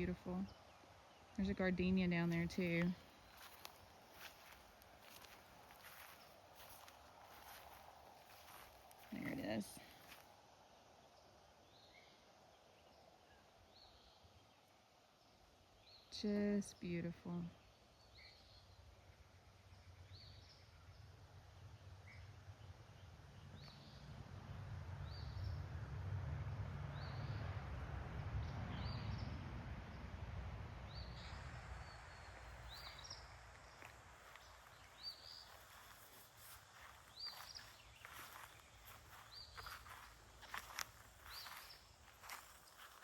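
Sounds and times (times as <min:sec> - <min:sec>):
bird chirping: 0:00.0 - 0:10.2, 0:30.9 - 0:43.0
low rumbling noise: 0:22.4 - 0:43.0.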